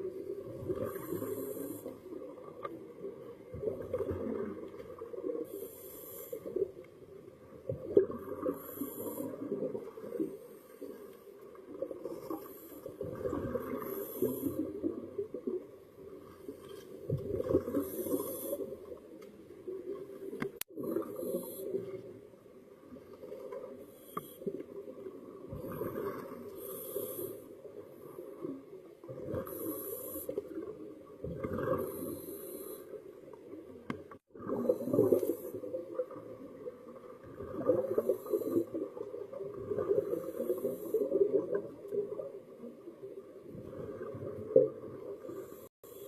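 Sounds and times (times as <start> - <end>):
diver breathing through regulator: 0.8 - 2.1, 5.4 - 6.6, 8.4 - 9.5, 13.6 - 14.8, 17.6 - 18.8, 26.5 - 27.6, 29.4 - 30.4, 31.6 - 33.0.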